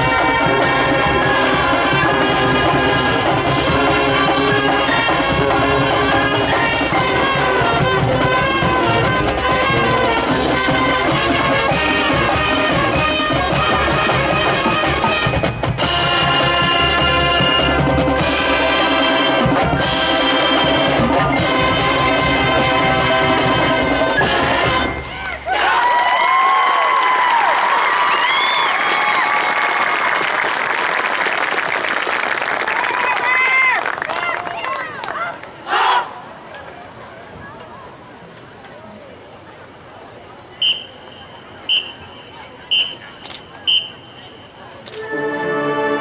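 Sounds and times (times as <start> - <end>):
marching band playing: 0.0 - 25.6, 44.6 - 46.0.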